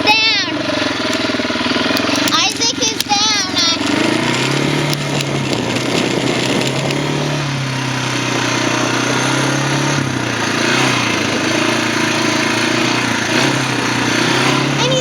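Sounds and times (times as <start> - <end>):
quad engine idling: 0.0 - 15.0.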